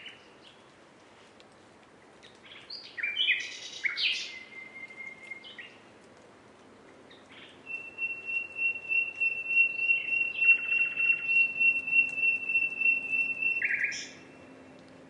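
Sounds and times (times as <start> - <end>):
nightingale whistled note: 7.7 - 14.1.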